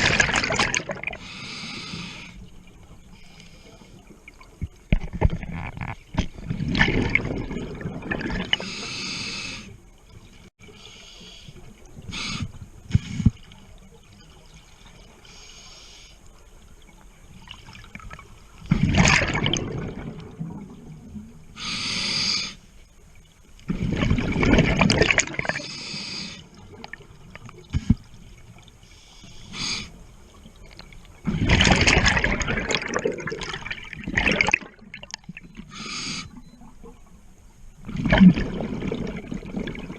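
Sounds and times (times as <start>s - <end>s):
regulator inhalation hiss: 1.2s - 2.4s, 8.6s - 9.8s, 10.8s - 12.6s, 15.2s - 16.2s, 21.6s - 22.7s, 25.6s - 26.4s, 28.8s - 30.0s, 35.7s - 36.4s.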